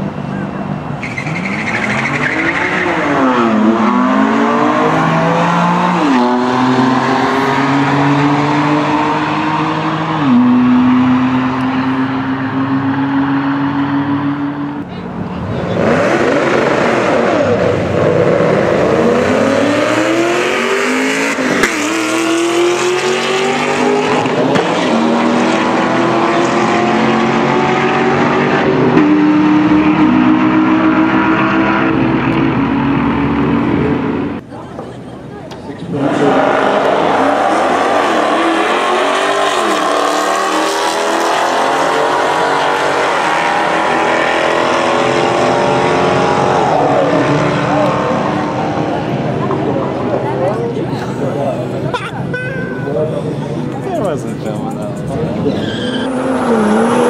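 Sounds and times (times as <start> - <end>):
cars accelerating hard: 0.0 - 34.5, 35.7 - 57.0
car engines revving: 0.0 - 57.0.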